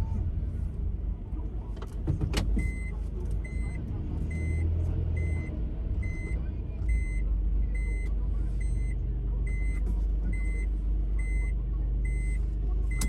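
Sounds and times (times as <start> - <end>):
reversing warning beeps: 2.6 - 13.0.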